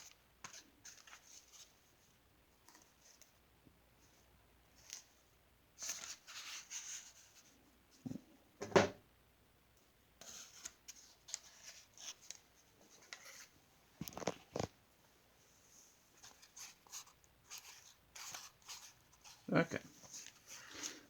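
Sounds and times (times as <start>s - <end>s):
rustling and scraping: 10.2s - 14.8s, 15.5s - 21.0s.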